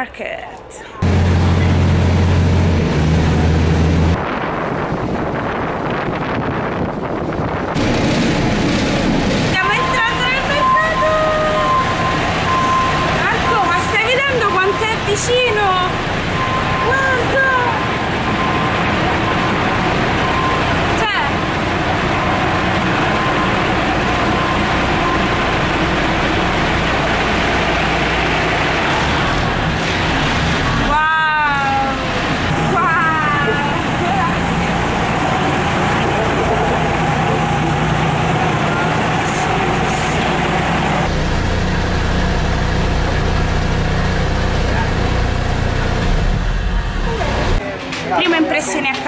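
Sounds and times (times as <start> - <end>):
low engine drone: 0.8 - 5.2, 7.5 - 47.6
rushing wind: 1.0 - 10.0
train rolling noise: 1.0 - 49.0.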